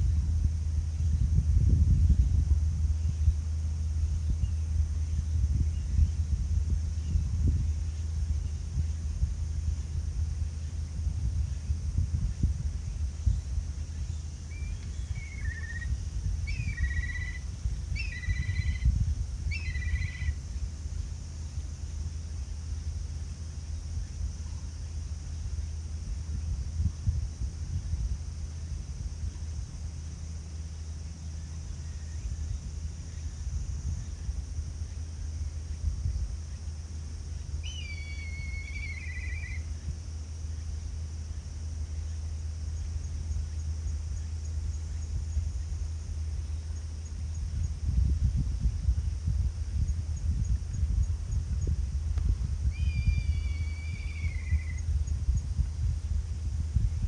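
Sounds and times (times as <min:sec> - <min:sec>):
songbird singing: 0:00.0 - 0:57.0
wind rumbling on microphone: 0:00.0 - 0:57.0
bird whistling and trilling: 0:37.7 - 0:39.6, 0:52.7 - 0:54.8.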